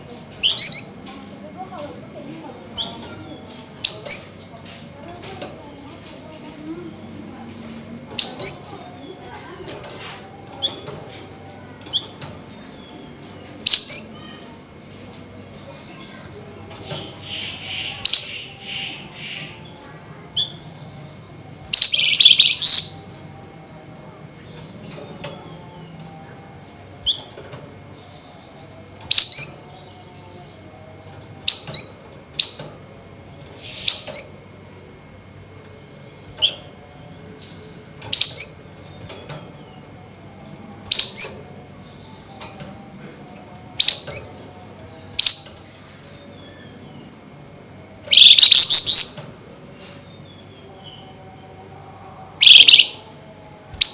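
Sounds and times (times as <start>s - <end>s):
songbird shrill chatter calls: 0.4s - 1.0s, 2.8s - 4.4s, 8.2s - 8.7s, 13.5s - 14.4s, 17.0s - 19.6s, 20.4s - 23.1s, 40.9s - 44.4s, 48.1s - 49.5s, 52.4s - 53.0s.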